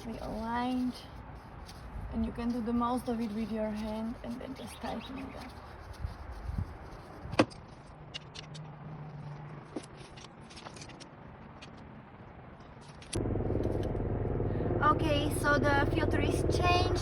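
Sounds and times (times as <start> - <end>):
steady rumbling noise: 13.0 - 17.0.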